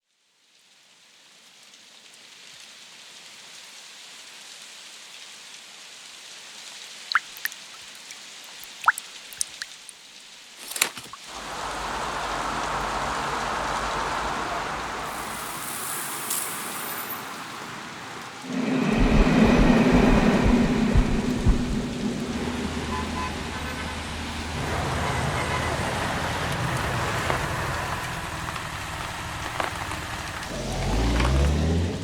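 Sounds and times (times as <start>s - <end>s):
rain: 0.0s - 32.0s
water drips: 7.1s - 10.0s, 10.6s - 24.8s.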